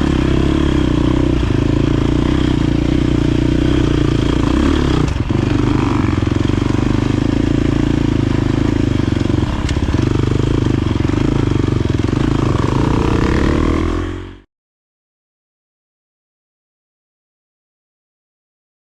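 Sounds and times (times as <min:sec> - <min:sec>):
dirt bike engine running: 0:00.0 - 0:14.4.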